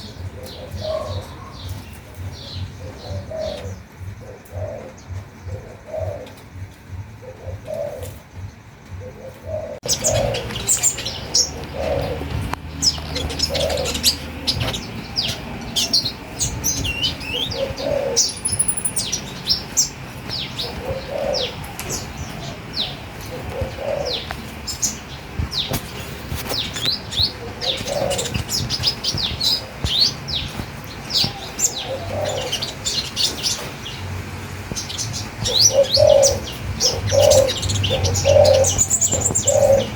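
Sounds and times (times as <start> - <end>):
quick high bird chirps: 18.2 - 19.5
low bird call: 34.9 - 39.9.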